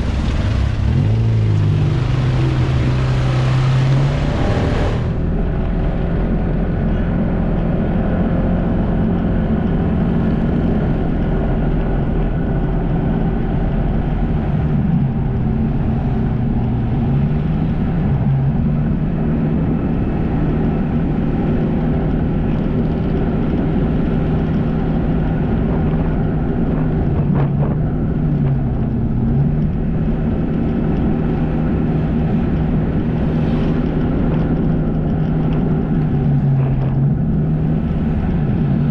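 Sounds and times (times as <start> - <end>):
jet ski engine running: 0.0 - 7.8, 18.5 - 38.9.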